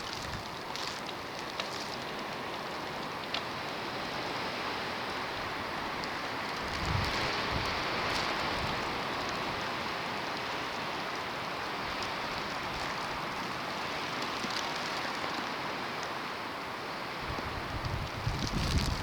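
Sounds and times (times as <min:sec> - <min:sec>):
ice ticking on surfaces: 0:00.0 - 0:03.8, 0:11.4 - 0:16.2, 0:18.2 - 0:19.0
wind-driven snow hissing: 0:16.8 - 0:19.0.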